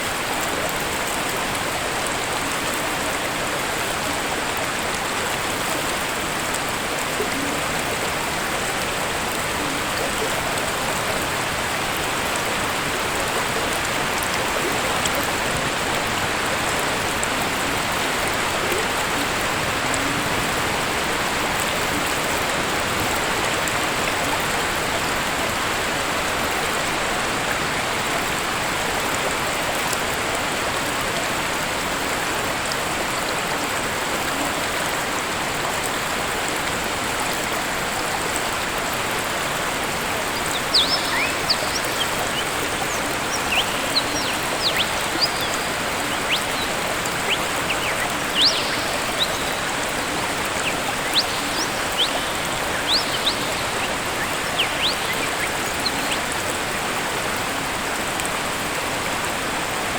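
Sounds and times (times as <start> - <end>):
waterfall rushing: 0.0 - 59.9
high bird chirps: 40.4 - 56.3.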